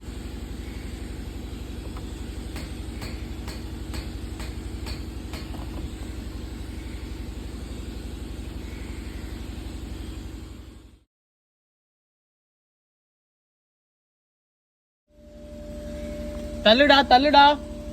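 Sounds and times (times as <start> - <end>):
car engine running: 0.0 - 11.0
sharp engine knocks: 1.8 - 6.4.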